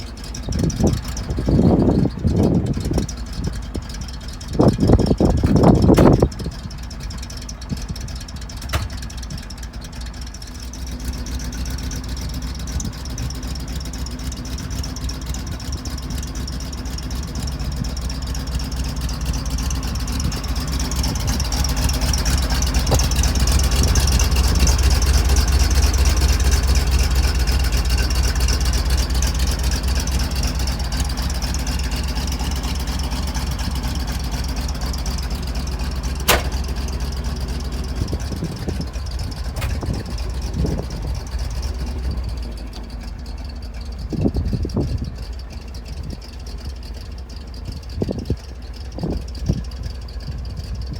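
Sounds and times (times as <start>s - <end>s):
truck engine running: 0.0s - 50.9s
sharp click: 36.3s - 36.7s.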